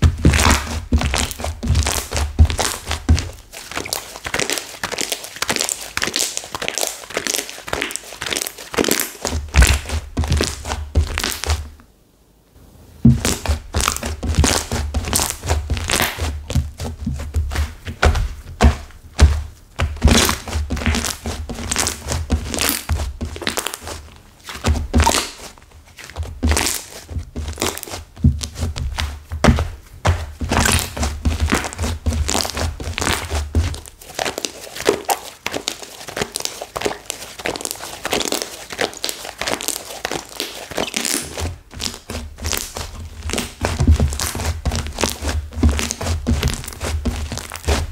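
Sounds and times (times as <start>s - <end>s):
clay slime crackling and crunching: 0.0s - 11.8s, 13.0s - 47.9s
soft low thunks: 28.2s - 31.4s.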